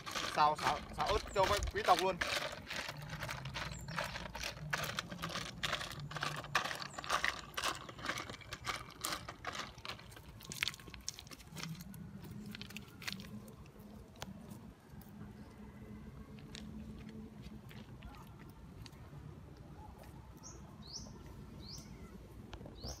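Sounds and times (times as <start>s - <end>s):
snail shells rattling in a metal pan: 0.0s - 11.0s.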